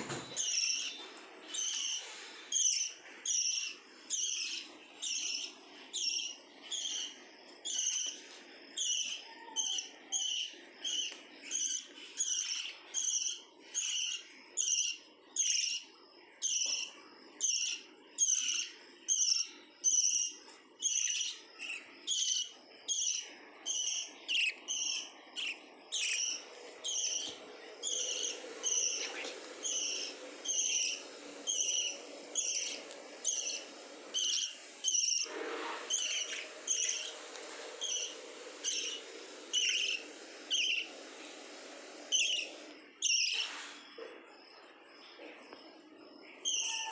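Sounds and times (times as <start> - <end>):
lovebird shrill chirps: 16.4 - 35.3, 37.8 - 40.9, 42.1 - 43.5, 46.4 - 46.9.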